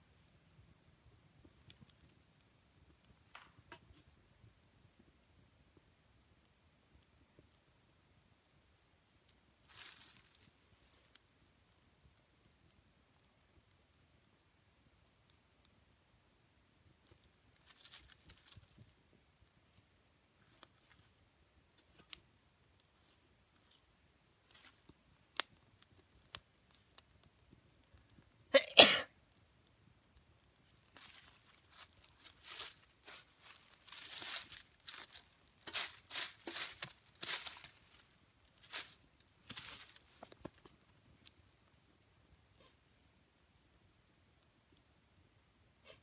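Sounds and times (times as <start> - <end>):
rustling and crunching: 9.6 - 11.2, 17.1 - 19.1, 20.2 - 22.2, 22.8 - 28.3, 30.2 - 41.4
faint clicks and snaps: 24.5 - 28.5
person coughing: 28.6 - 29.1.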